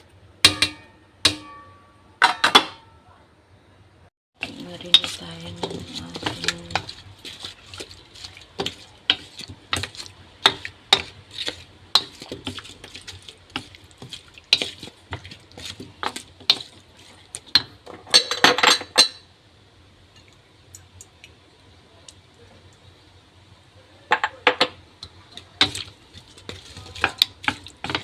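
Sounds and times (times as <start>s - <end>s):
utensil clinking against bowl: 4.4s - 7.9s.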